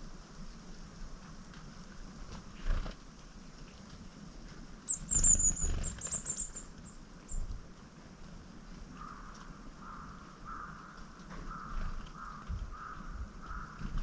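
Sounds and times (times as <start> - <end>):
small bird high thin calls: 4.9 - 7.5.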